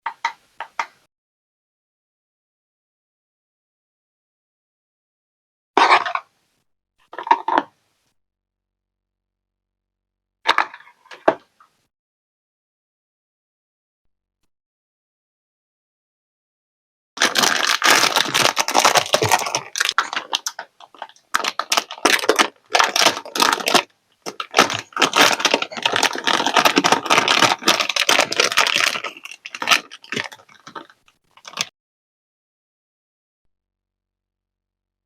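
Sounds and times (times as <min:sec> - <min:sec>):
plastic packaging crinkling: 0:07.2 - 0:07.6, 0:10.5 - 0:11.4, 0:17.2 - 0:31.7
small clicks and rattles: 0:17.2 - 0:31.7.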